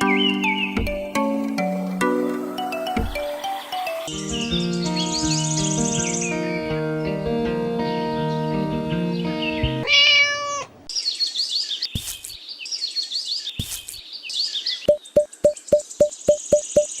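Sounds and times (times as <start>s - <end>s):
music: 0.0s - 9.9s
birds chirping: 0.0s - 17.0s
cat meowing loudly: 9.8s - 10.8s.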